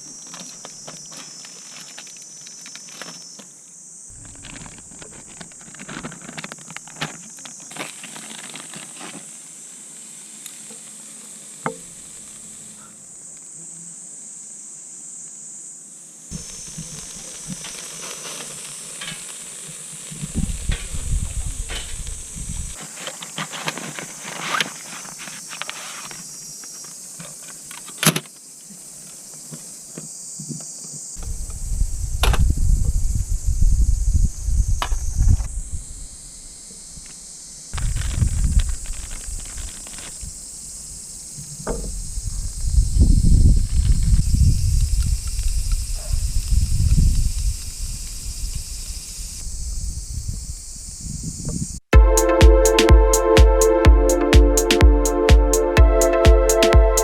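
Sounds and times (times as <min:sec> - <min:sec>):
insects droning: 0:00.0 - 0:51.9
meat sizzling on a grill: 0:16.4 - 0:22.3.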